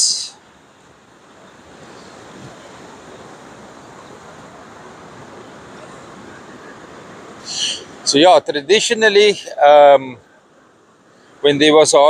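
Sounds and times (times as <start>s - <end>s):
surf rushing on beach: 0.0s - 12.0s
wind noise on microphone: 1.6s - 4.2s.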